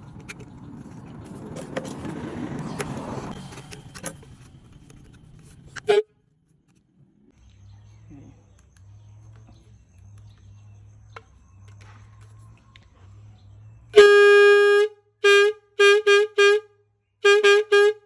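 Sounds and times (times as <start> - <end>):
homemade horn toots: 5.7 - 6.2, 13.9 - 18.0.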